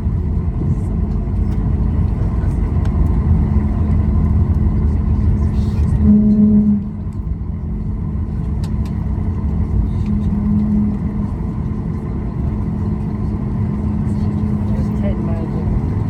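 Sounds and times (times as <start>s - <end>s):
aircraft cabin rumble: 0.0s - 16.0s
cabin hum: 7.8s - 16.0s.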